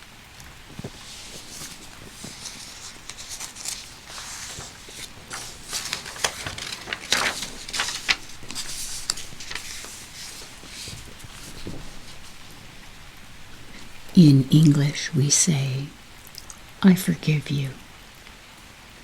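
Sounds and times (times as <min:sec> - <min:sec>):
gentle rain patter: 0:00.0 - 0:19.0
handling clicks and rustles: 0:00.4 - 0:12.6.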